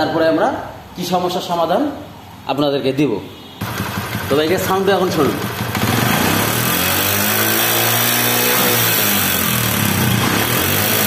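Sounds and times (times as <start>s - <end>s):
harsh engine rattle: 3.6s - 11.0s
motorcycle engine revving: 3.6s - 11.0s.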